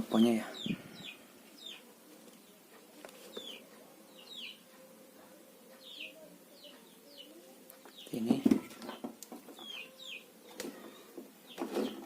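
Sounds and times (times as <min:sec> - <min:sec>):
faint bird chirps: 0:05.7 - 0:12.0.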